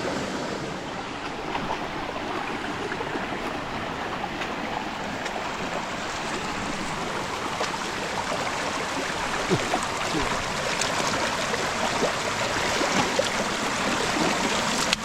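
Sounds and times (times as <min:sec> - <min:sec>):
stream rushing and babbling: 0:00.0 - 0:15.0.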